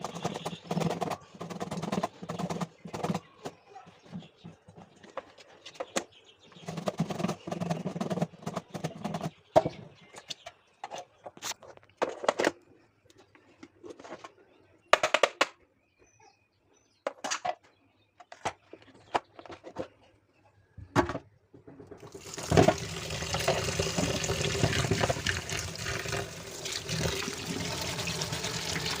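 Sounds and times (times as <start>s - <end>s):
water running: 22.0s - 29.0s.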